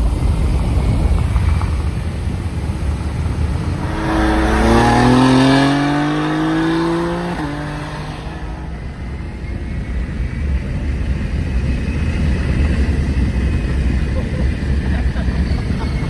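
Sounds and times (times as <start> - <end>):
wind and road rumble: 0.0 - 16.0
race car engine accelerating: 3.2 - 10.4.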